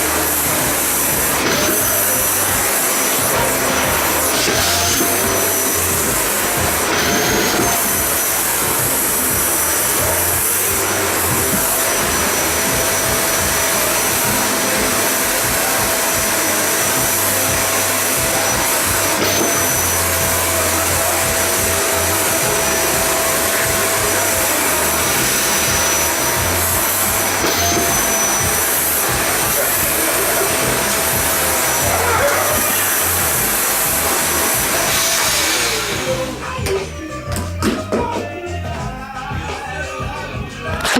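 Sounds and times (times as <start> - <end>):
vacuum cleaner running: 0.0 - 37.9.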